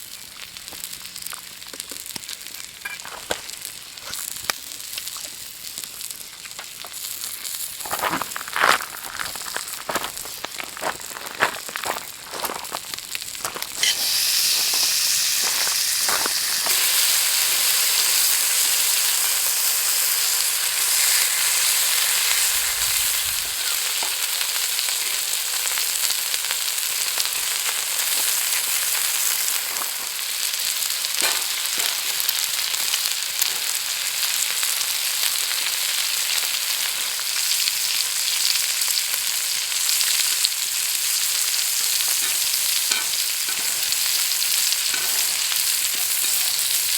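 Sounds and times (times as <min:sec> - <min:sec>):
meat sizzling on a grill: 0:00.0 - 0:11.1, 0:12.0 - 0:46.9
small crackles: 0:00.4 - 0:14.0.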